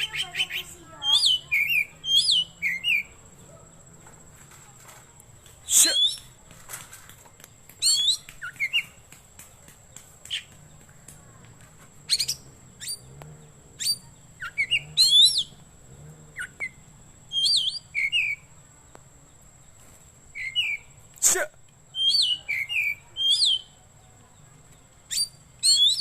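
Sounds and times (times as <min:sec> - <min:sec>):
bird singing whistled phrases: 0:00.0 - 0:03.1, 0:05.7 - 0:06.3, 0:07.8 - 0:09.0, 0:13.8 - 0:15.5, 0:16.4 - 0:18.5, 0:20.3 - 0:21.0, 0:21.9 - 0:23.8, 0:25.1 - 0:26.0.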